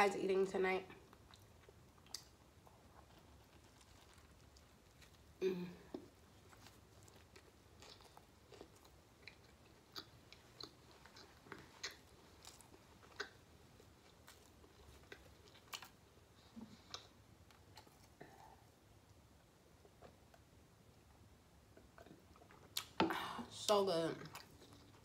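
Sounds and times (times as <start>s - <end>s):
soft mouth clicks chewing: 1.1s - 5.3s, 5.9s - 19.2s, 21.7s - 23.0s.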